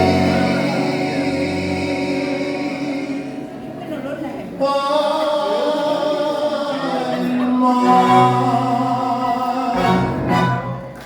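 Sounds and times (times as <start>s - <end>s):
man singing: 0.0s - 3.6s, 4.6s - 10.8s
tango orchestra playing: 0.0s - 4.6s, 7.1s - 11.0s.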